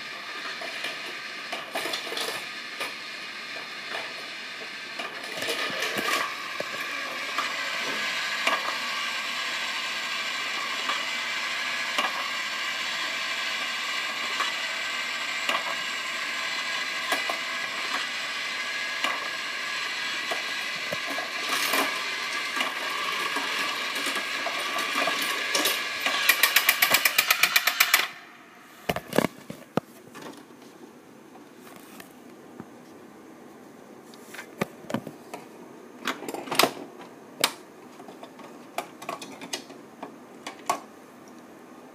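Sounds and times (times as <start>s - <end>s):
small electric motor whirring: 0.1s - 28.2s.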